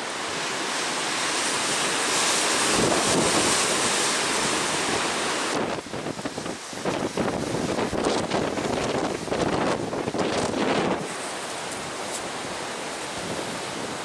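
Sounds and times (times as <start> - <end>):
strong wind buffeting microphone: 2.5 - 11.2.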